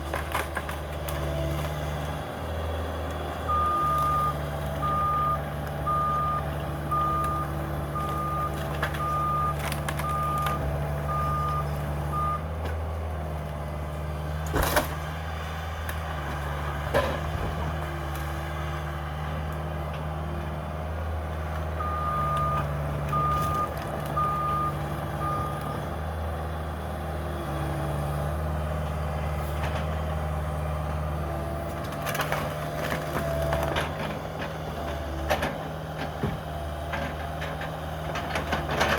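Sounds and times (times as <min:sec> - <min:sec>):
excavator diesel engine running: 0:00.0 - 0:38.9
backup alarm beeping: 0:03.5 - 0:12.4, 0:21.8 - 0:25.7.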